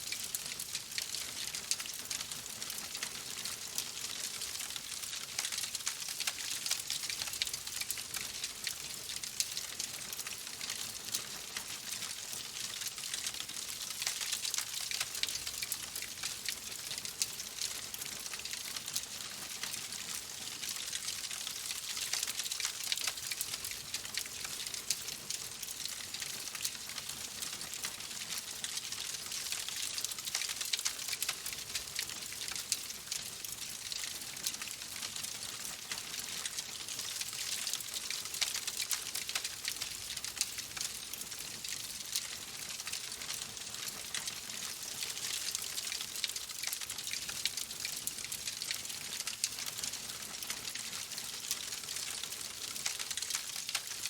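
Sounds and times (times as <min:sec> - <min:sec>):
wood fire crackling: 0:43.8 - 0:48.3.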